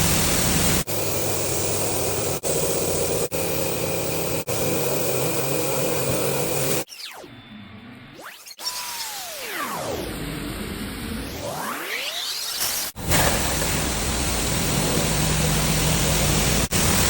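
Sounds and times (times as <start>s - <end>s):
swooping electronic tones: 6.8s - 10.3s, 11.2s - 12.6s
car wash spray rushing: 13.0s - 17.0s.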